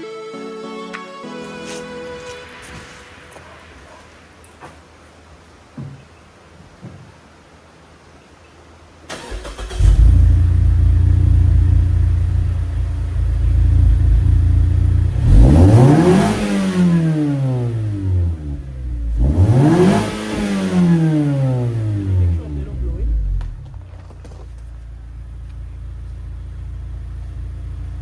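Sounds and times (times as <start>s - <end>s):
car engine starting and revving: 9.1s - 23.9s.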